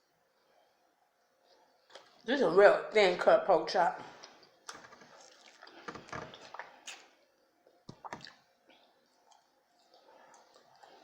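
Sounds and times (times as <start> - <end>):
chewing: 4.2 - 11.0
mouth clicks and smacks: 5.2 - 7.2, 7.9 - 8.4.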